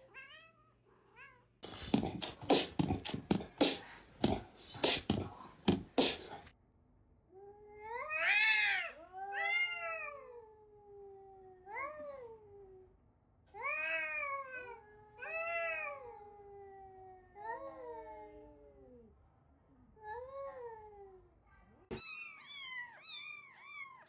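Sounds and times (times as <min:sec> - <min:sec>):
cat meowing: 0:21.9 - 0:24.0.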